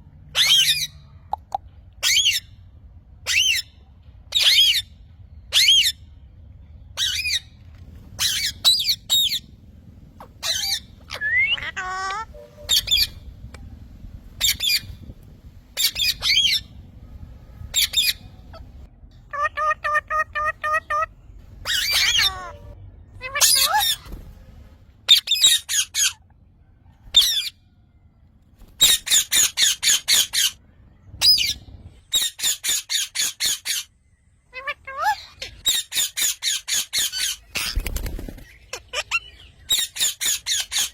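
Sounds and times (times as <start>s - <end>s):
parrot squawking: 0.3s - 1.0s, 8.2s - 9.5s, 10.3s - 13.3s, 14.4s - 15.0s, 15.8s - 16.7s, 17.7s - 18.7s, 19.3s - 24.1s, 25.1s - 26.2s, 28.8s - 30.6s, 31.2s - 33.9s, 34.5s - 37.8s, 38.6s - 40.9s.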